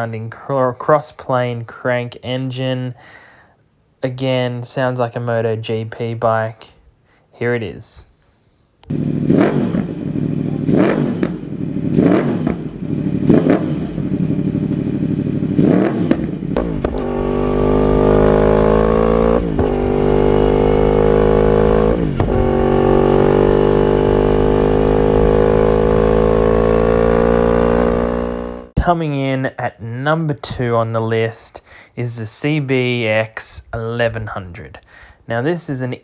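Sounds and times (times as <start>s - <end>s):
motorcycle high-rev note: 8.9s - 28.7s
motorcycle engine revving: 8.9s - 28.8s.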